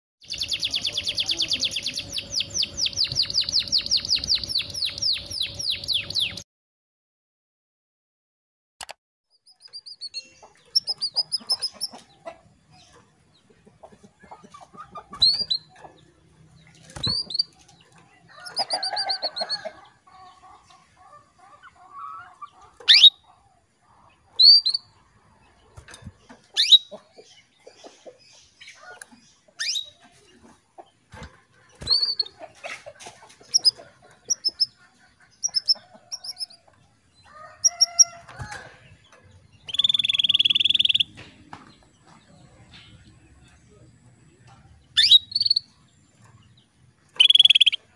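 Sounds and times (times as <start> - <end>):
canary chirping and trilling: 0.2 - 6.4, 9.3 - 41.2, 44.6 - 47.9.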